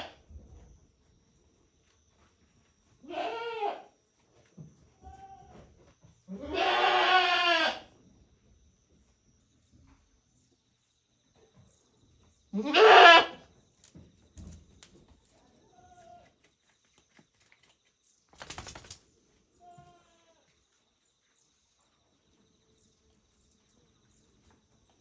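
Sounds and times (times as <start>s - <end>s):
goats bleating: 3.0s - 3.9s, 6.3s - 7.8s, 12.6s - 13.4s.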